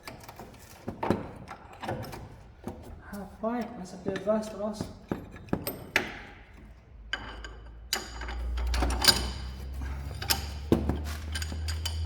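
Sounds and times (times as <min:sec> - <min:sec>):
metal tools clinking and knocking: 0:07.1 - 0:12.0.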